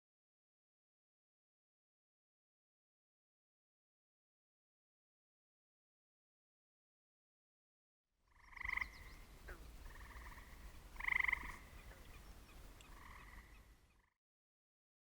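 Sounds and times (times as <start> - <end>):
animal calls: 8.4 - 13.7.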